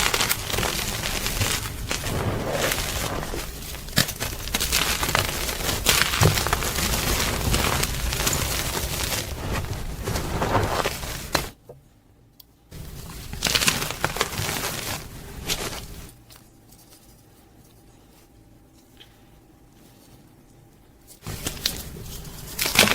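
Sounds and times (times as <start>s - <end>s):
chalk crunching: 0.0s - 11.5s, 12.8s - 16.2s.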